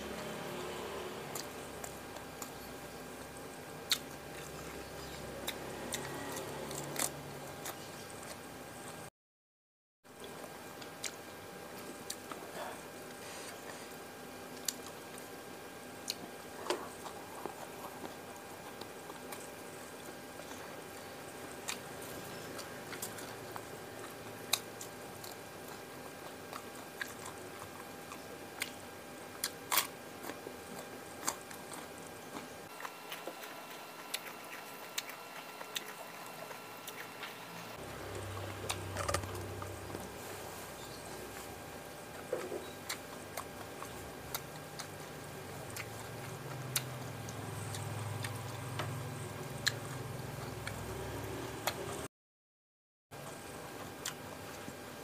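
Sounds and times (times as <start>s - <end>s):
chewing and biting food: 0.0s - 9.0s, 10.2s - 52.0s, 53.2s - 54.8s
small crunches: 29.4s - 46.9s.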